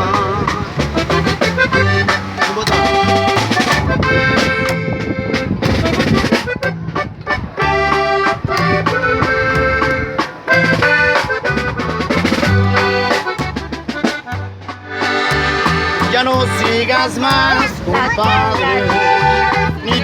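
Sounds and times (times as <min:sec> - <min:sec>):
accordion playing: 0:00.0 - 0:20.0.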